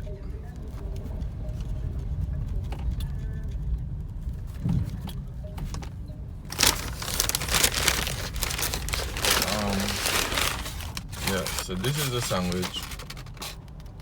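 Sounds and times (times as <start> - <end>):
car engine idling: 6.5 - 13.6
paper bag crinkling: 6.5 - 13.6.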